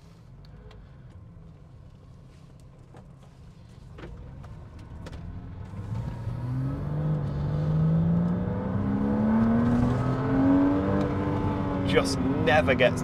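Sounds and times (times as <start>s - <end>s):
car engine accelerating: 4.2s - 13.0s.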